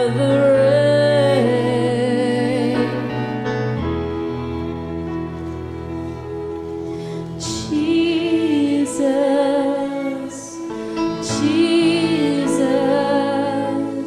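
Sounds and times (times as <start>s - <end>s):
woman singing: 0.0s - 3.5s, 7.3s - 14.0s
sustained keyboard chords: 0.0s - 14.0s.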